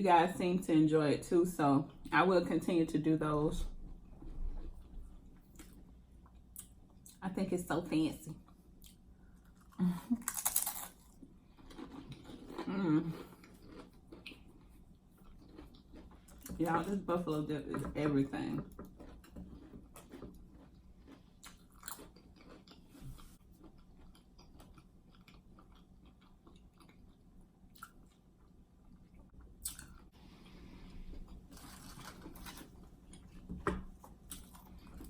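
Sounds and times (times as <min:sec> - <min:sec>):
chewing and crunching: 0:04.0 - 0:07.2, 0:08.4 - 0:16.6, 0:18.6 - 0:35.0.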